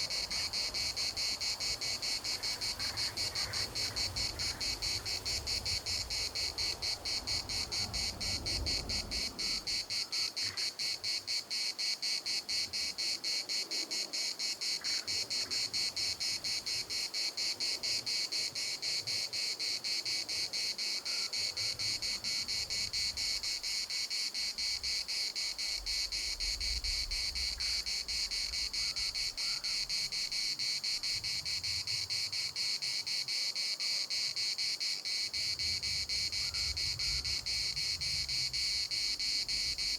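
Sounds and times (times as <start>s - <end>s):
low wind rumble: 0.0s - 10.0s, 25.7s - 32.2s, 35.4s - 39.9s
cicadas shrilling: 0.0s - 39.9s.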